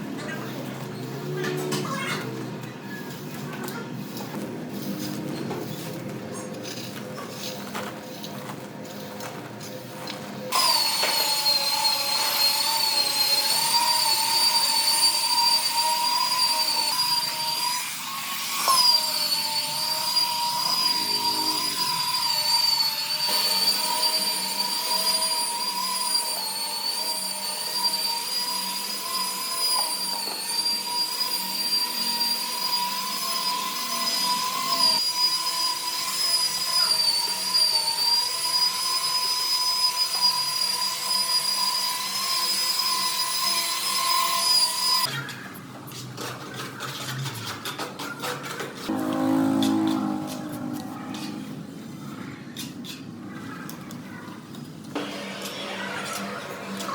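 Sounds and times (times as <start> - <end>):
power tool motor whining: 10.5 - 45.1, 48.9 - 51.6.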